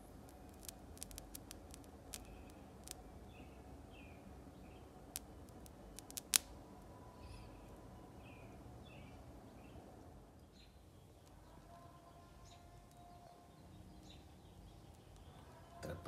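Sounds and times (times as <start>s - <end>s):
sharp clicks: 0.0s - 3.0s, 5.2s - 6.5s
faint bird chirps: 2.1s - 4.9s, 6.9s - 9.8s.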